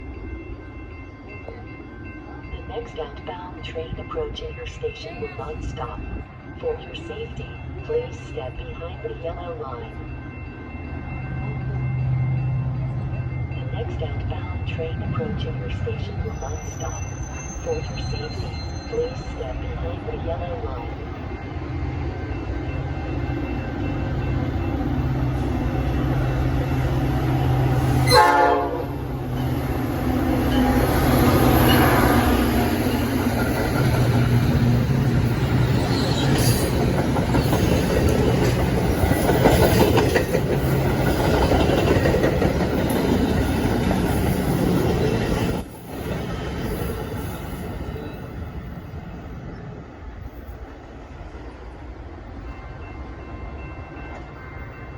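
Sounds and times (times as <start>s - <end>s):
locomotive horn honk: 27.9s - 29.1s
train wheels clattering on rails: 29.2s - 48.4s.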